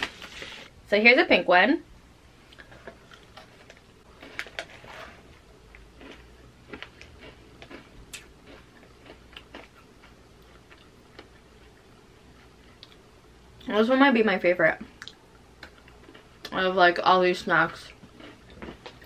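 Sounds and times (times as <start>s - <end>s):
cookie crunching: 2.6s - 11.8s.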